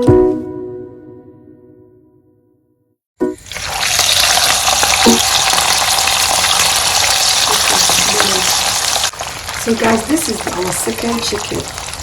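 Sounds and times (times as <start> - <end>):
chicken frying in hot oil: 3.4 - 12.0.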